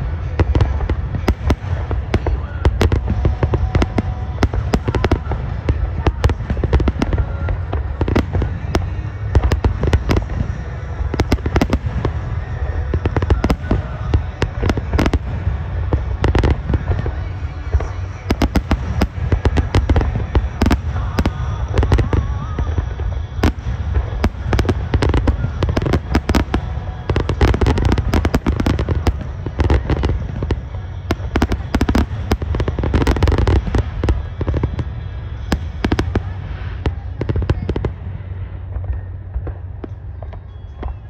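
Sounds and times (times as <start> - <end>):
fireworks bangs and crackles: 0.0 - 41.0
steady low rumble: 0.0 - 41.0.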